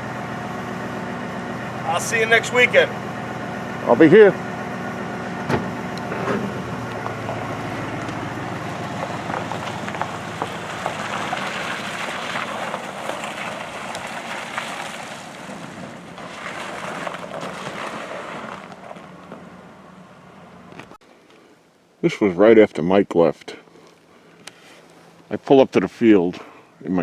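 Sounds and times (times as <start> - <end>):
vehicle engine pulling away: 0.0 - 21.0.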